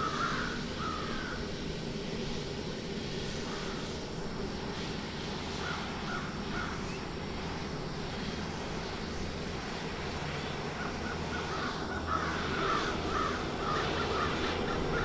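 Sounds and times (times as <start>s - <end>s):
bird calling: 0.0s - 1.5s, 5.6s - 7.1s, 10.6s - 15.0s
steady background hum: 0.0s - 15.0s.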